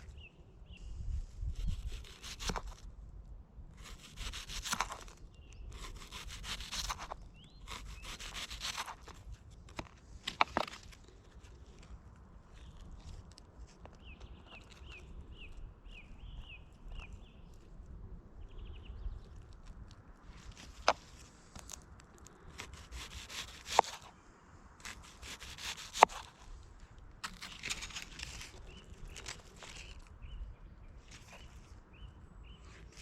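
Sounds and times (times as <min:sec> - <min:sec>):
rough rasping scrapes on wood: 0:01.6 - 0:02.8, 0:03.8 - 0:05.1, 0:05.7 - 0:09.2, 0:22.6 - 0:24.1, 0:24.8 - 0:26.4.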